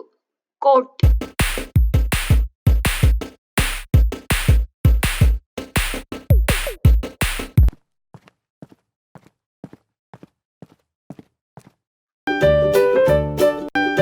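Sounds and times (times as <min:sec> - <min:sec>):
drum-machine beat: 0:01.0 - 0:07.7.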